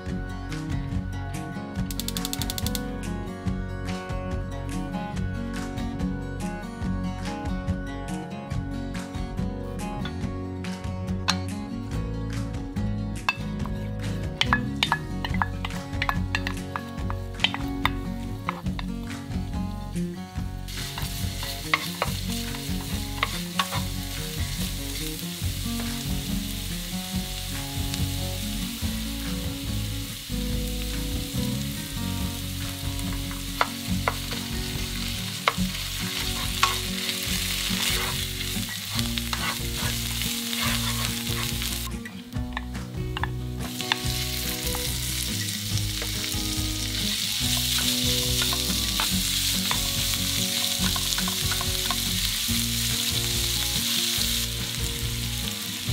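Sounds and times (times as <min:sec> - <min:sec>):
garlic sizzling in oil: 0:14.3 - 0:19.6, 0:20.4 - 0:55.9
spatula scraping a pan: 0:35.4 - 0:41.9.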